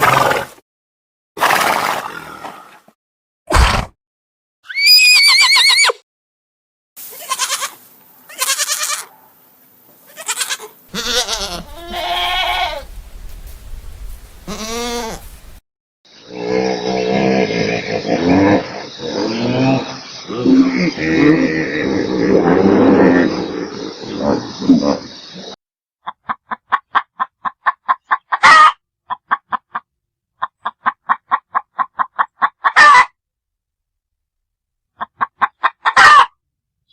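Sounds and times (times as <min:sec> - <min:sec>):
farm animals bleating: 0:07.1 - 0:09.2, 0:10.1 - 0:15.6
hen cackling: 0:07.1 - 0:09.2, 0:10.1 - 0:15.6, 0:26.0 - 0:29.8, 0:30.4 - 0:33.1, 0:35.0 - 0:36.3
high animal call: 0:10.1 - 0:15.6
low animal sound: 0:10.9 - 0:15.6, 0:16.2 - 0:25.6.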